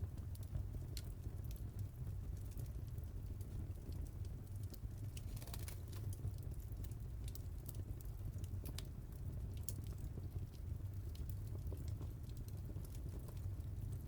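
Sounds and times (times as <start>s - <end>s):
fireplace fire crackling: 0.0s - 14.0s.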